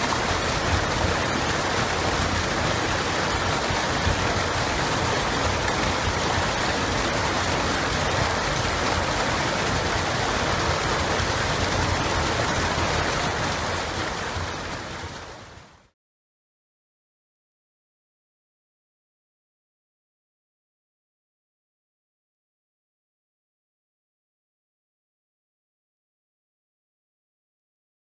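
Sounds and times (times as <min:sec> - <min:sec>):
river water rushing: 0:00.0 - 0:15.8.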